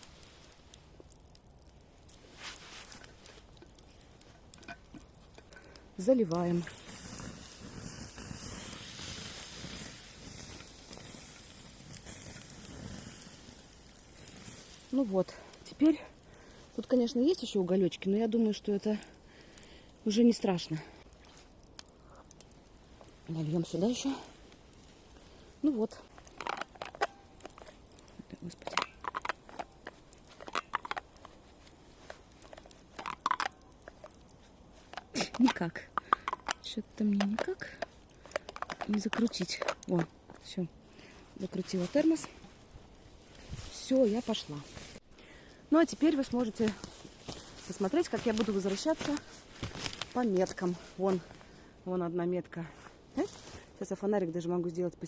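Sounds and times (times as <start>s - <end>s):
liquid hissing on hot coals: 0.0s - 52.0s
thermos cap clicking and scraping: 2.0s - 15.9s, 20.1s - 40.8s, 41.4s - 45.0s, 45.8s - 51.4s.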